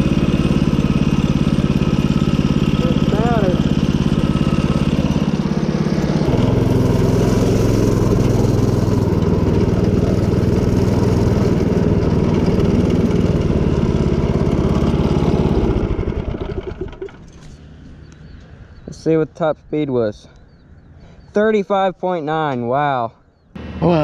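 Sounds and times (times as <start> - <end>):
mini bike engine at high revs: 0.0 - 17.3, 23.6 - 24.0.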